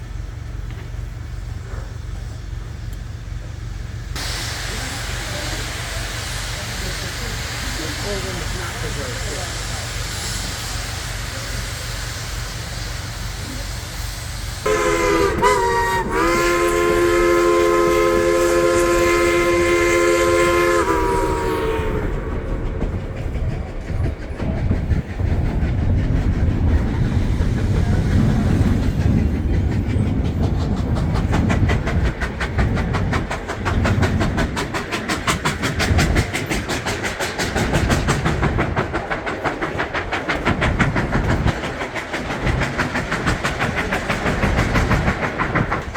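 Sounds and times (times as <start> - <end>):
train rumbling: 0.0 - 45.9
steam locomotive whistle: 14.6 - 23.0.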